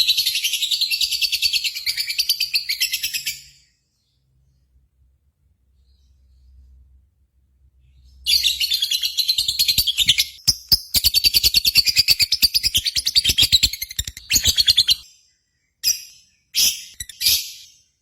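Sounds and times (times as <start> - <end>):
bird chirping: 0.0 - 6.9, 7.7 - 18.0
lovebird chattering trill: 8.3 - 15.0.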